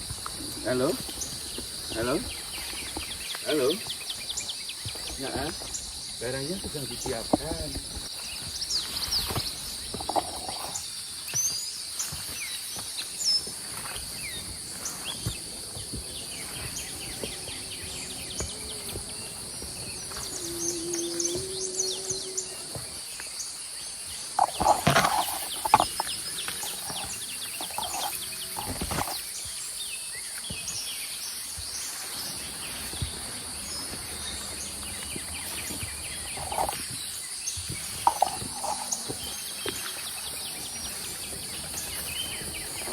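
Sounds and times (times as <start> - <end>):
insects droning: 0.0 - 42.9
bird chirps: 16.1 - 33.2
knocks and rustles: 24.4 - 29.5, 37.6 - 39.8.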